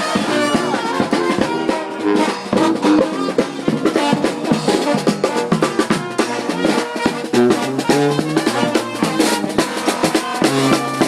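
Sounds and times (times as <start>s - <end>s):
brass band playing: 0.0s - 11.0s
snare and bass drum beat: 0.0s - 11.0s.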